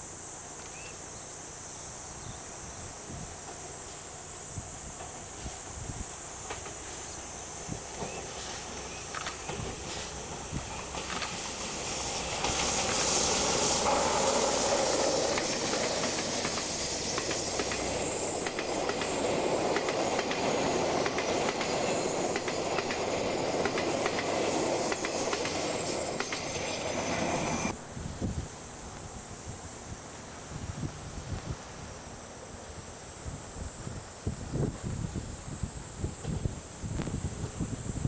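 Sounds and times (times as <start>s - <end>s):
train wheels clicking over rail joints: 7.8s - 27.8s
steady rushing noise: 9.6s - 28.4s.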